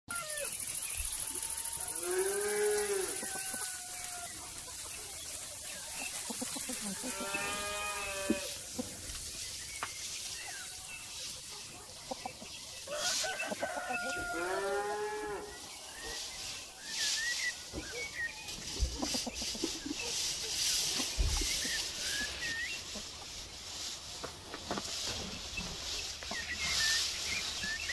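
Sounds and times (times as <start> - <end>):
cattle mooing: 7.0 - 8.5.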